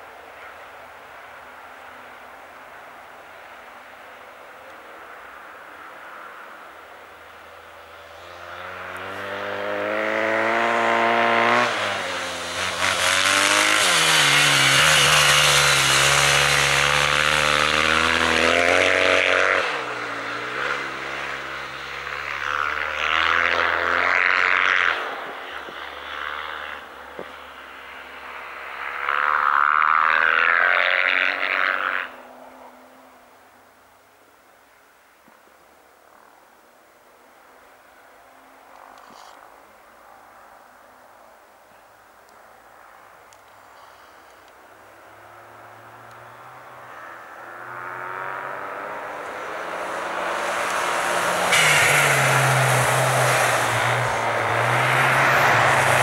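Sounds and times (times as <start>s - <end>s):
racing engines at full throttle: 4.7s - 33.0s, 43.8s - 56.0s
loud rushing noise: 49.7s - 56.0s.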